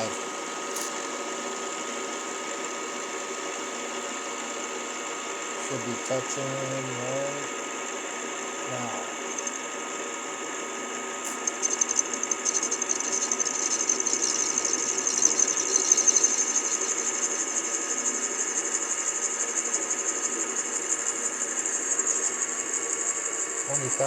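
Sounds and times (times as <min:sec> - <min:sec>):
milling machine motor hum: 0:00.0 - 0:24.0
high-pitched metal cutting noise: 0:11.2 - 0:17.8.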